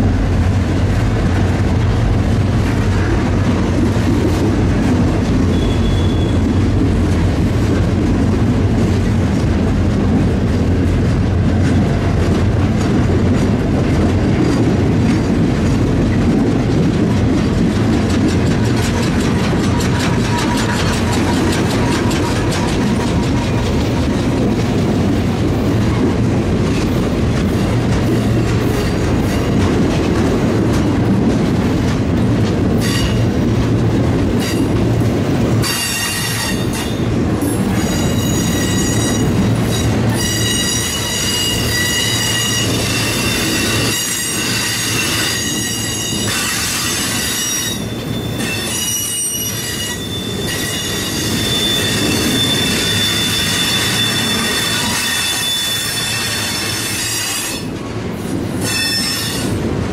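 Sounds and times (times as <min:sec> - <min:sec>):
diesel locomotive drone: 0:00.0 - 0:59.9
train wheel squeal: 0:05.4 - 0:06.8, 0:18.0 - 0:24.4, 0:32.8 - 0:33.4, 0:34.4 - 0:34.8, 0:35.6 - 0:59.7.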